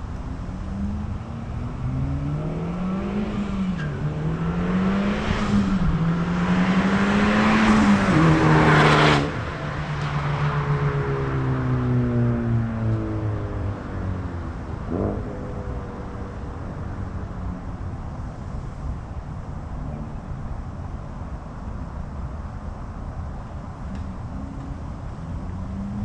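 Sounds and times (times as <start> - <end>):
car engine accelerating: 0.0 - 19.2.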